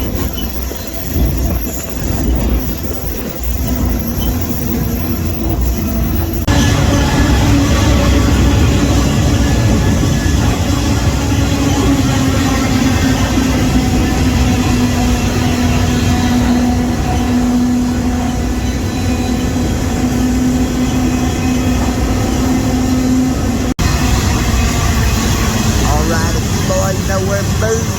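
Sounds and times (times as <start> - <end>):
freight train rumbling: 0.0 - 27.9.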